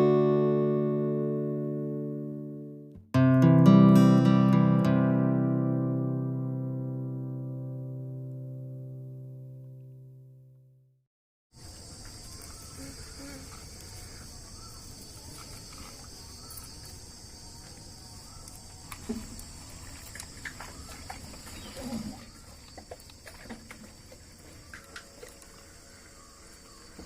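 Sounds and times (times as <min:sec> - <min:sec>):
crickets chirping: 0:11.6 - 0:27.0.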